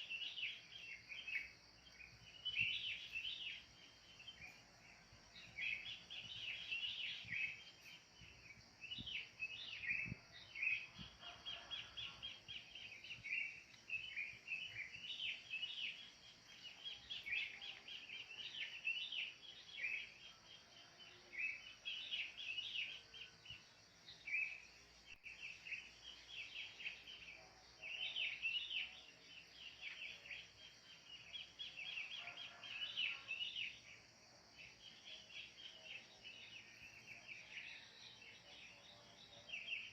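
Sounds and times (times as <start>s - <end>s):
wild birds chirping: 0.0s - 39.9s.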